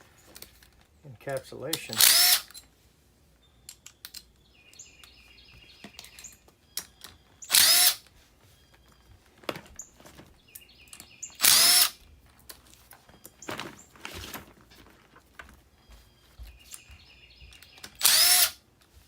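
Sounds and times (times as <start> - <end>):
cordless drill driving screws: 1.9 - 2.6, 7.4 - 8.1, 11.4 - 12.0, 17.8 - 18.6
light clicks of tool handling: 3.6 - 5.2.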